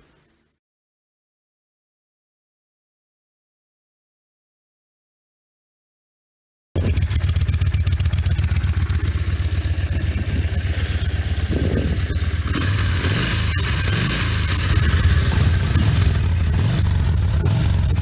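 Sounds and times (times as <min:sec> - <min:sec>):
motorcycle engine running: 0:06.8 - 0:18.0.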